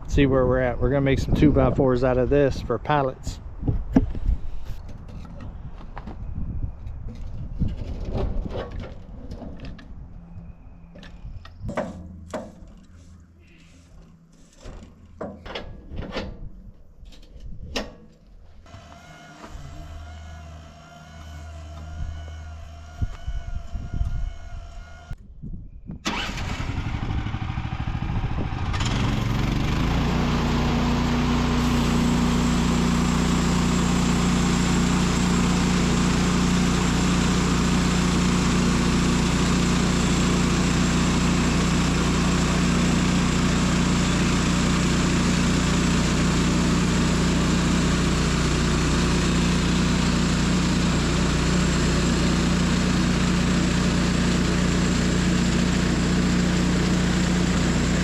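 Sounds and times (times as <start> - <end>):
sawmill engine running: 18.6 - 25.2, 26.1 - 58.0.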